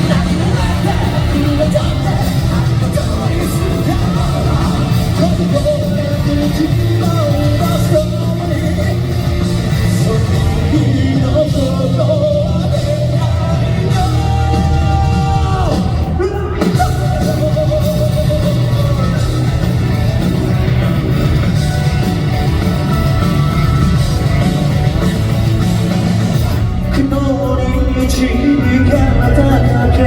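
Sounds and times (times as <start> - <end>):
man singing long notes: 0.0 - 19.8, 26.6 - 30.0
rock band playing loudly: 0.0 - 30.0.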